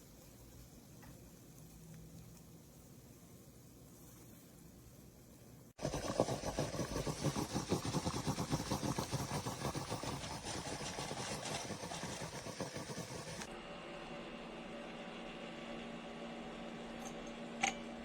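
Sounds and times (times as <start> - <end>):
espresso machine pulsing sputter: 5.8 - 13.5.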